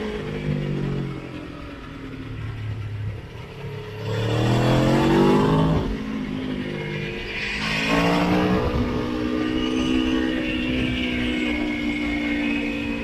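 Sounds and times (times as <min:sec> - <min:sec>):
motorcycle engine accelerating: 0:00.0 - 0:13.0
wind rush: 0:07.1 - 0:13.0.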